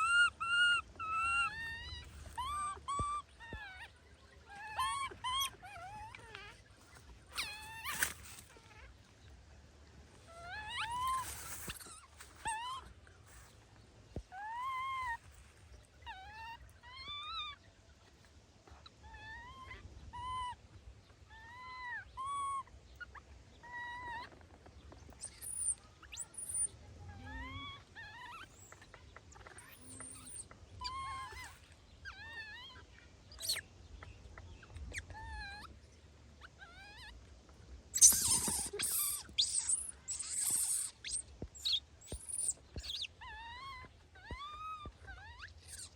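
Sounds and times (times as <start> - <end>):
baby monkey crying: 0.0 - 9.0, 10.2 - 12.9, 14.3 - 15.3, 21.3 - 22.7, 25.1 - 33.6, 36.4 - 37.2, 37.9 - 45.9.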